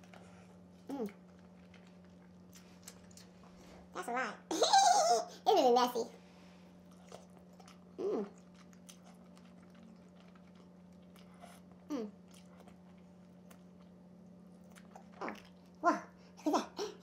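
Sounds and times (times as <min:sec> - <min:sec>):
wet chewing and mouth clicks: 0:00.0 - 0:03.7, 0:06.8 - 0:15.8.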